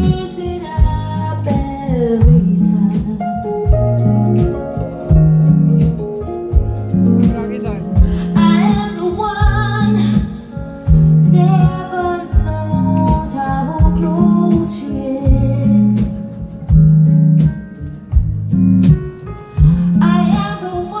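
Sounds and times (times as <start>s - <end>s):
band music: 0.0s - 21.0s
bass line: 0.0s - 21.0s
plucked guitar: 0.0s - 21.0s
person singing: 7.5s - 16.3s.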